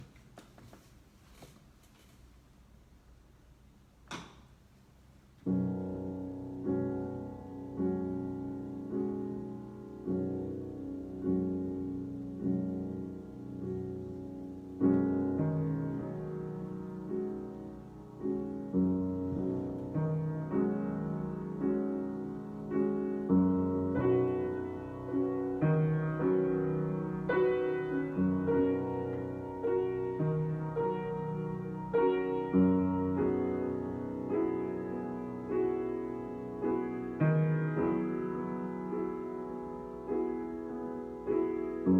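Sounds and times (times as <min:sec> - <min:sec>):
slow piano chords: 0:05.1 - 0:41.9.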